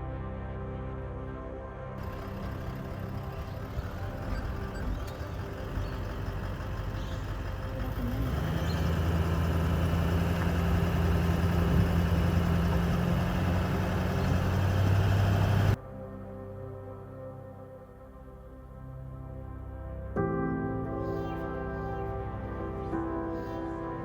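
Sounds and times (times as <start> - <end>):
background music: 0.0 - 24.0
vehicle engine running: 2.0 - 15.8.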